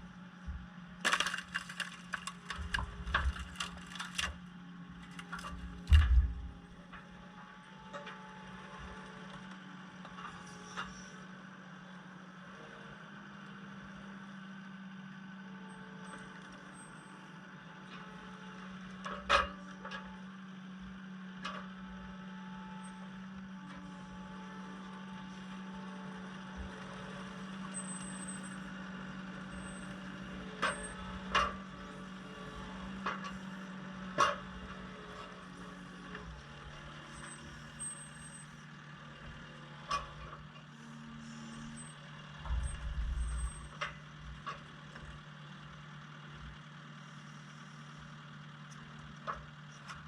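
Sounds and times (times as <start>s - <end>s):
diesel engine running: 0.1s - 7.8s, 22.8s - 50.0s.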